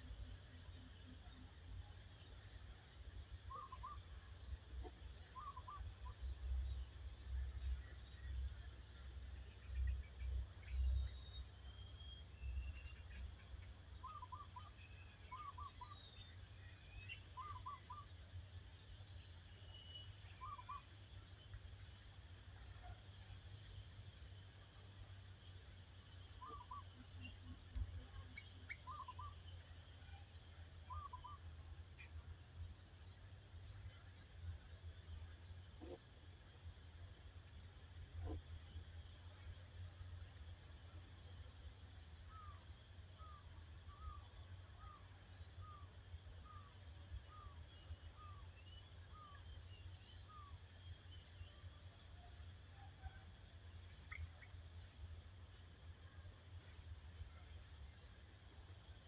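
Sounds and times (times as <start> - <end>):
faint higher bird chirps: 0.0 - 32.4, 40.9 - 57.5
steady low hum: 0.0 - 59.0
birds chirping: 19.0 - 21.6, 26.3 - 29.6, 30.9 - 31.4.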